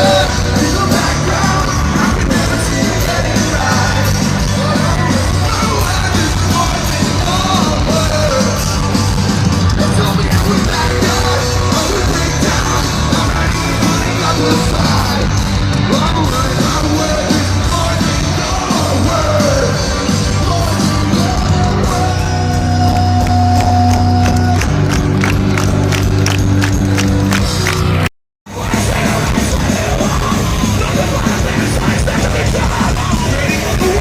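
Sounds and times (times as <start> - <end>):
person yelling singing: 0.0 - 24.8, 28.5 - 34.0
loud rock music: 0.0 - 34.0.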